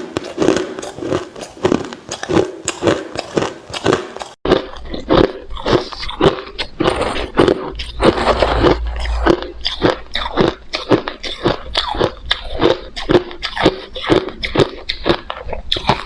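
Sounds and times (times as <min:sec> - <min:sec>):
chewing crushed ice: 0:00.0 - 0:16.0
low hum: 0:07.2 - 0:11.1.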